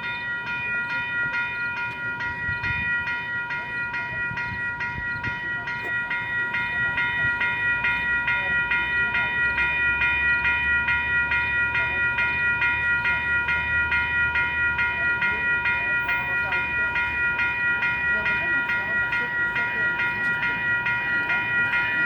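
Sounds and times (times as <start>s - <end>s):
railway warning bell ringing: 0.0s - 22.0s
train rumbling: 0.0s - 22.0s.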